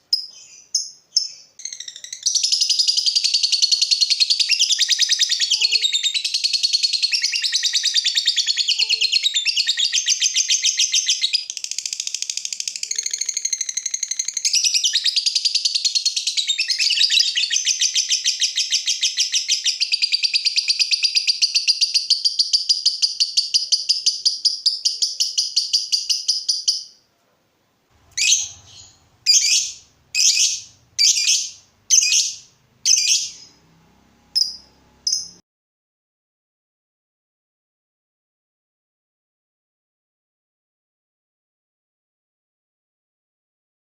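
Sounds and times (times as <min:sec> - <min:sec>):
shrill bird calls: 0:00.1 - 0:27.0, 0:28.0 - 0:33.6
bird chattering trill: 0:00.2 - 0:15.8, 0:28.1 - 0:33.6, 0:34.4 - 0:35.4.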